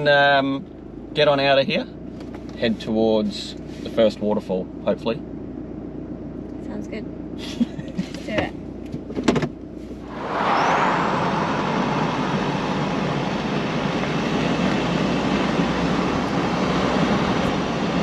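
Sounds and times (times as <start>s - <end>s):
road and wind noise: 0.0s - 18.0s.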